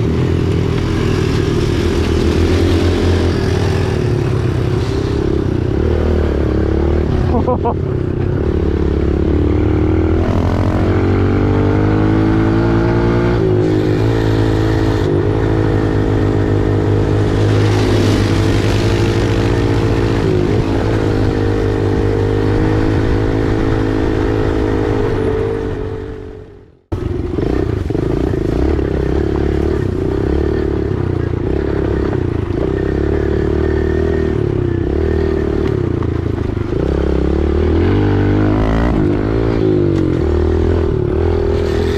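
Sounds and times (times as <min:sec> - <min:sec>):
dirt bike engine running: 0:00.0 - 0:26.3, 0:26.9 - 0:41.9.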